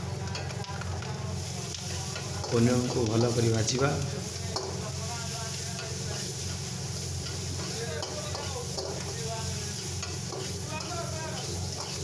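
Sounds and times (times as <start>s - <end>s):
onion sizzling in hot oil: 0.0s - 12.0s
metal ladle stirring in wok: 4.2s - 12.0s.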